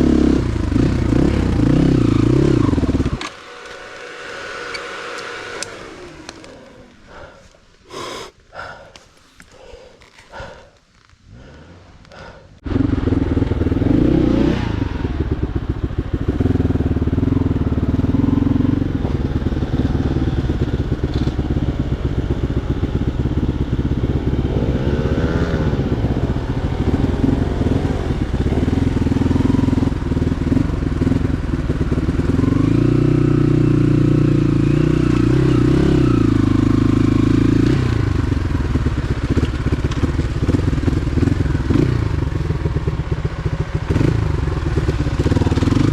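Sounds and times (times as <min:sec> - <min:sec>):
motorcycle engine revving: 0:00.0 - 0:07.4, 0:12.6 - 0:45.9.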